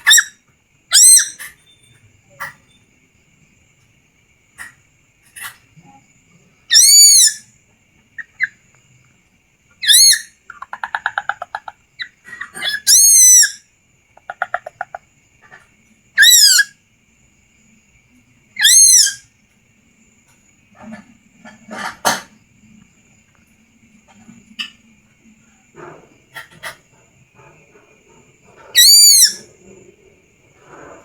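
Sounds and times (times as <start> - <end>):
chick whistled calls: 0.9 - 1.7, 6.7 - 7.4, 9.8 - 10.7, 11.5 - 13.6, 28.8 - 29.5.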